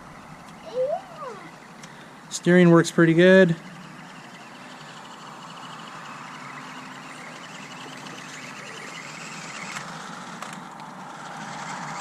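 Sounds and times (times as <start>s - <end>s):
outdoor background hiss: 0.0s - 7.8s
small electric motor whining: 0.0s - 12.0s.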